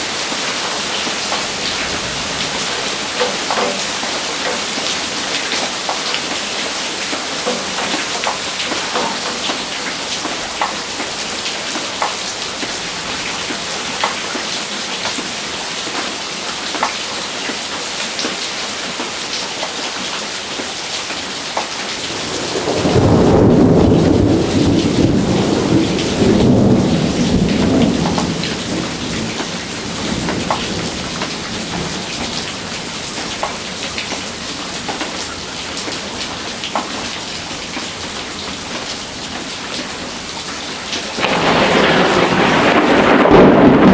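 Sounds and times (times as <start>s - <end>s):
heavy rain: 0.0s - 43.9s
raindrops ticking: 0.0s - 43.9s
thunder rumbling: 22.1s - 32.7s, 41.2s - 43.9s.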